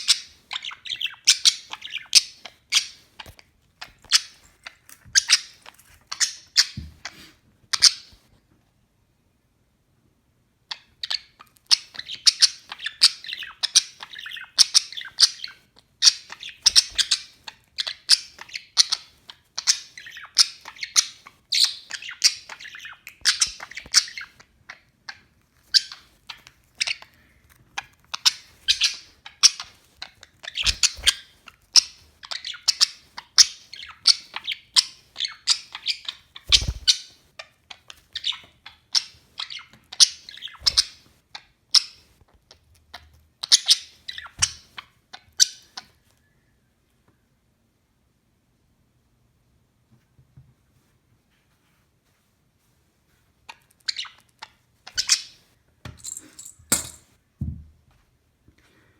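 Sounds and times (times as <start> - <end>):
budgerigar warbling and chattering: 0.0 - 3.0, 10.7 - 27.1, 27.8 - 37.2, 38.2 - 42.0, 53.8 - 55.4.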